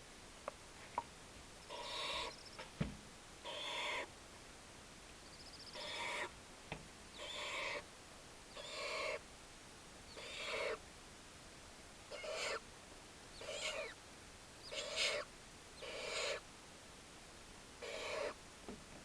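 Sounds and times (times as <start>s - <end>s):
owlets rasping begging calls: 1.6s - 2.5s, 3.4s - 4.1s, 5.4s - 6.3s, 7.2s - 7.8s, 8.5s - 9.2s, 10.1s - 10.8s, 12.1s - 12.6s, 13.4s - 14.0s, 14.6s - 16.4s.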